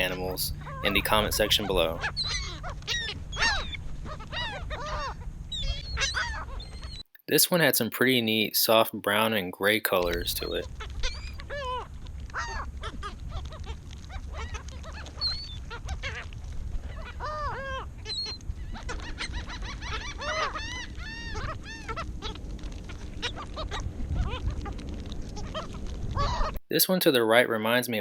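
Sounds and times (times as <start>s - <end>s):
seagulls calling: 0.0s - 7.0s, 9.9s - 26.6s
steady low background noise: 0.0s - 28.0s.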